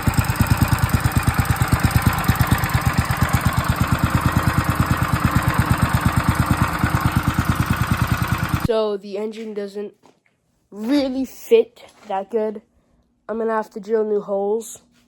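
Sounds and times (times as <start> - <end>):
small engine idling: 0.0 - 8.7.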